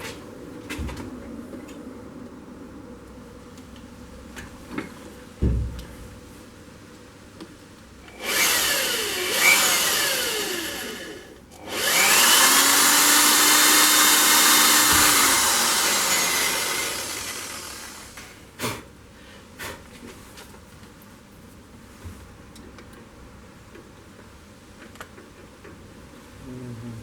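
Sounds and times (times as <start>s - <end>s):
electric drill spinning: 8.1s - 18.3s.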